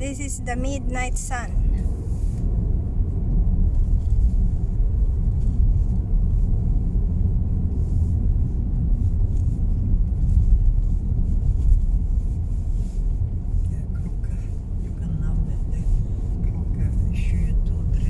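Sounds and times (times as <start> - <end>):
car road noise rumble: 0.0 - 18.0.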